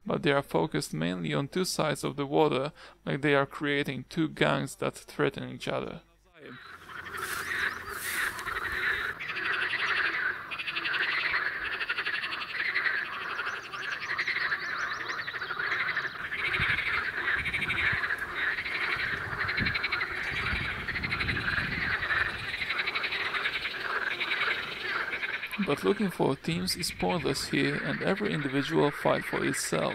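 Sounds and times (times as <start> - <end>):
frogs croaking: 6.4 - 29.9.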